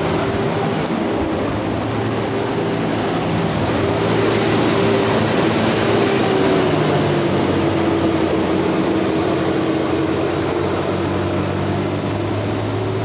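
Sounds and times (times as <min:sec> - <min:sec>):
cement mixer diesel engine: 0:00.0 - 0:13.0.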